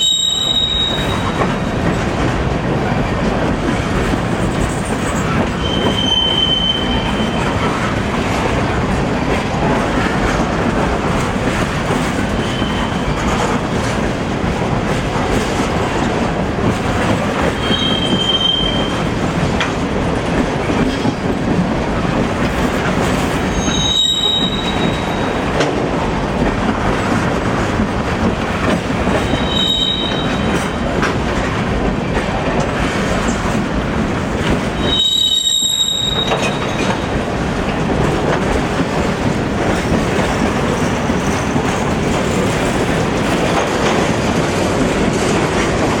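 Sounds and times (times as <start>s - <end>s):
high-pitched wheel squeals: 0.0s - 1.5s, 5.6s - 7.5s, 17.6s - 19.0s, 23.5s - 25.4s, 29.2s - 30.6s, 34.8s - 37.0s
freight train wheels rumbling: 0.0s - 46.0s.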